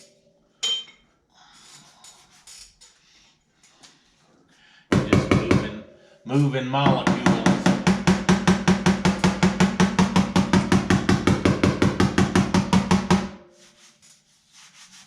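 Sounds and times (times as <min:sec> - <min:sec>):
hammer tapping sheet metal: 0:04.9 - 0:13.7.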